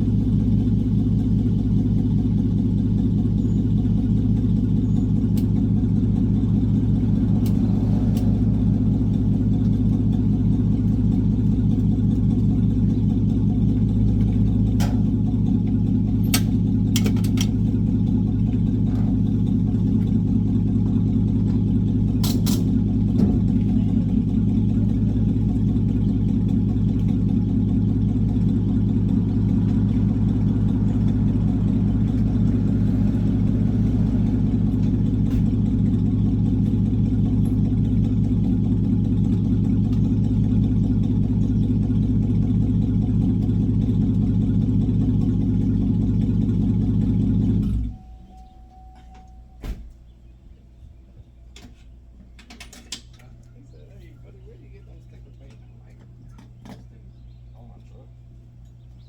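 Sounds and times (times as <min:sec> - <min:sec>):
truck engine droning: 0:00.0 - 0:59.0
thin beep: 0:48.0 - 0:49.7.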